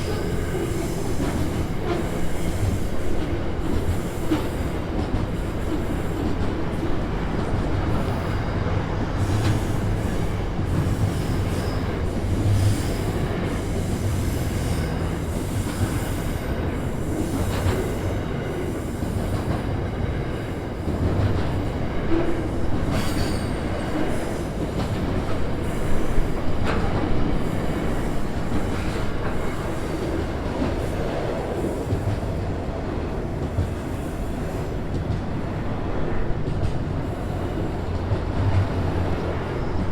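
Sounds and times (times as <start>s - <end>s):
freight train rumbling on rails: 0.0s - 39.9s
high-pitched wheel squeals: 9.3s - 16.0s.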